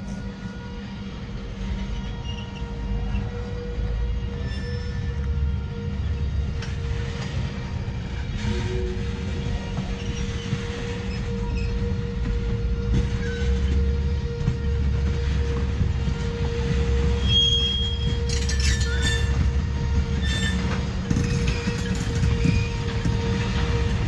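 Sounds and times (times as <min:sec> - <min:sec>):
train wheels rumbling on rail: 0:00.0 - 0:24.0
high wheel squeal: 0:01.8 - 0:06.2, 0:08.4 - 0:12.2, 0:12.8 - 0:13.8, 0:17.0 - 0:19.6, 0:20.2 - 0:24.0.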